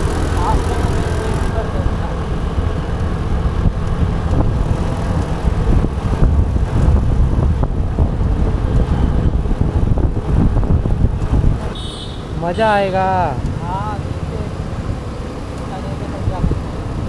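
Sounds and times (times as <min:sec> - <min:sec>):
road traffic: 0:00.0 - 0:17.0
scooter engine running: 0:00.0 - 0:17.0
wind on microphone: 0:01.9 - 0:11.9, 0:16.2 - 0:17.0.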